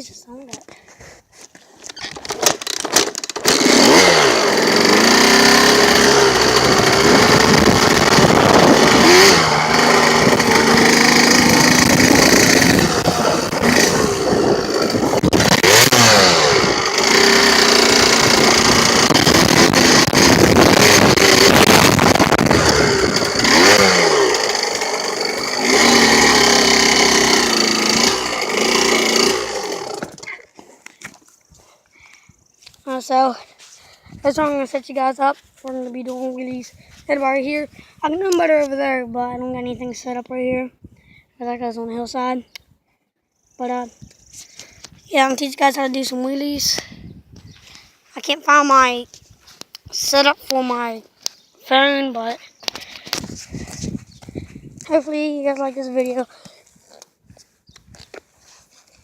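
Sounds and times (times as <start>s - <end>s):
dirt bike engine revving: 2.5s - 30.4s.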